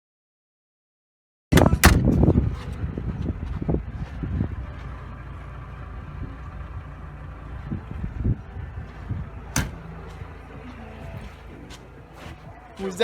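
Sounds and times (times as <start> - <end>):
car engine running: 1.6 - 13.0
low thumps: 6.0 - 12.6.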